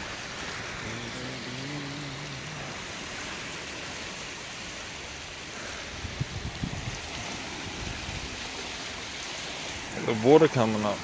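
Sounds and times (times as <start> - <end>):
rushing water: 0.0 - 11.0
low voice humming: 0.8 - 2.9.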